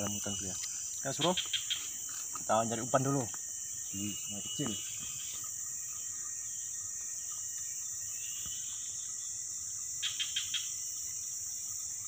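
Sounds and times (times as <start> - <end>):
chorus of forest insects: 0.0 - 12.0.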